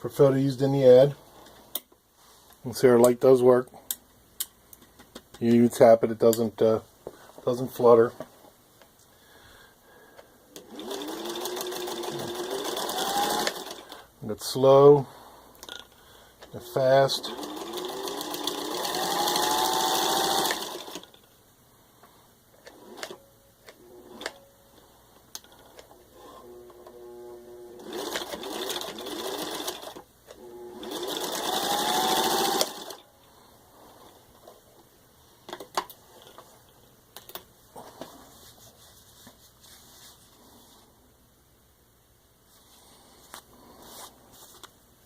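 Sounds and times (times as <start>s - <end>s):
sewing machine mechanism clicks: 10.6s - 13.9s, 17.2s - 21.2s, 27.8s - 30.0s, 30.8s - 33.0s
electric sewing machine stitching: 10.6s - 14.0s, 16.6s - 21.2s, 26.1s - 33.0s.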